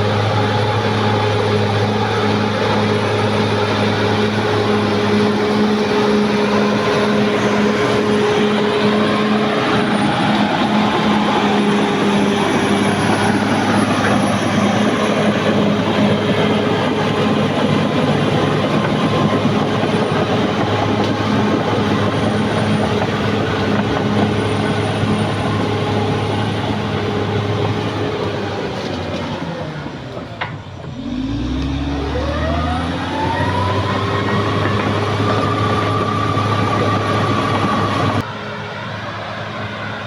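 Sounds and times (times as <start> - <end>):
steel tracks clattering: 0.0 - 31.0
bulldozer diesel engine running: 0.0 - 40.0.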